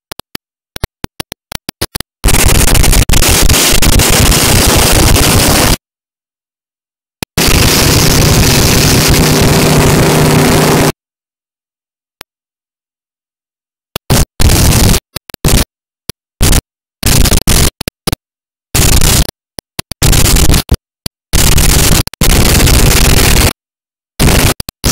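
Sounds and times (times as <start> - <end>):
motorboat engine hum: 7.4 - 10.9.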